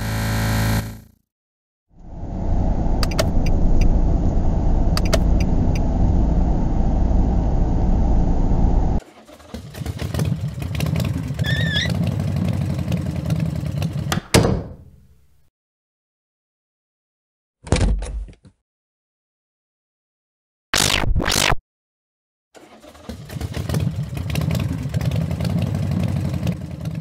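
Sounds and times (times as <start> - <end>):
car engine sound effect: 2.0 - 14.2
rough engine with squeal: 11.2 - 12.6.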